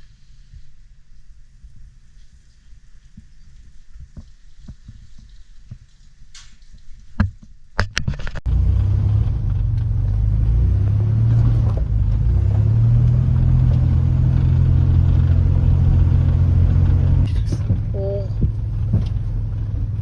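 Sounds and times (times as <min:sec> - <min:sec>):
vehicle engine rumbling: 0:08.3 - 0:20.0.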